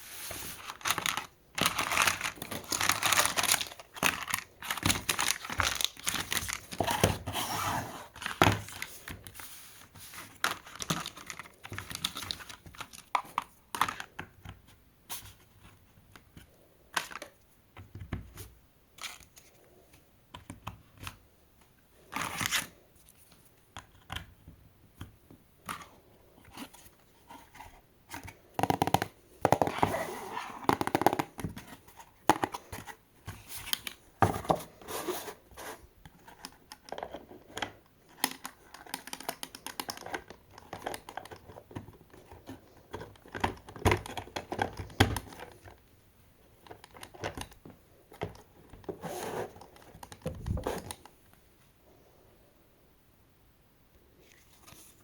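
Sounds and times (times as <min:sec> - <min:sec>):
cardboard and plastic crinkling: 0:00.0 - 0:14.1.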